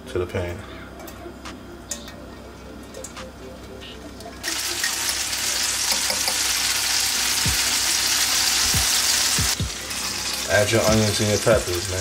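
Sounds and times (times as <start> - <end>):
garlic sizzling in oil: 4.4 - 12.0.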